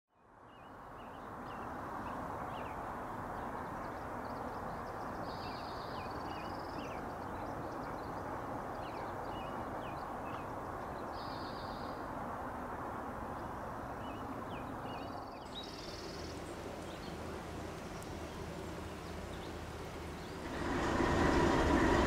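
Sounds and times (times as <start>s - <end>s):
small birds chirping: 14.0s - 20.6s
steady rushing noise: 15.5s - 22.0s.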